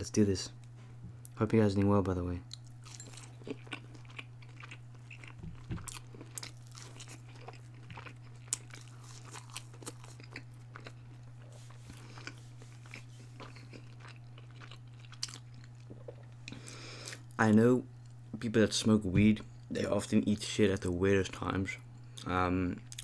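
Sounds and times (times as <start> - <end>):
steady low hum: 0.0 - 23.0
chewing crunchy food: 1.8 - 17.4.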